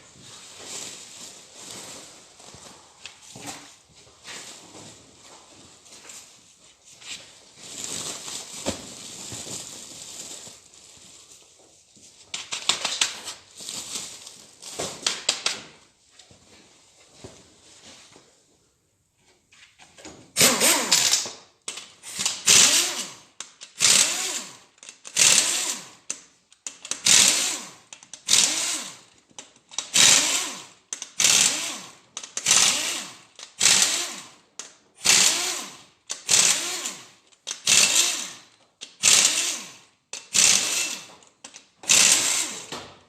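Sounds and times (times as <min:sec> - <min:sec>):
power tool spinning out bolts: 0:20.4 - 0:21.4, 0:22.1 - 0:26.0, 0:26.8 - 0:29.0, 0:29.8 - 0:34.2, 0:35.0 - 0:41.1, 0:41.8 - 0:42.7.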